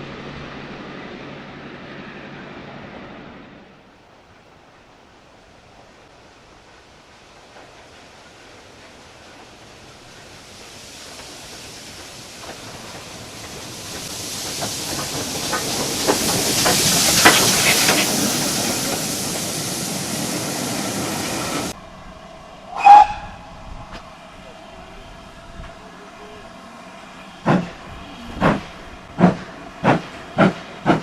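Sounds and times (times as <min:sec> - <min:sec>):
train passing: 0:00.0 - 0:31.0
loud pitched note: 0:22.6 - 0:24.1.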